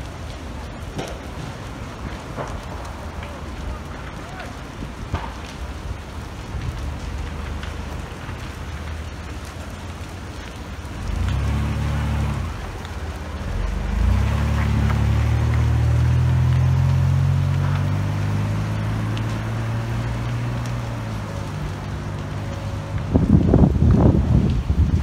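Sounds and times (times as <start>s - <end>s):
vehicle engine humming: 6.6s - 25.0s.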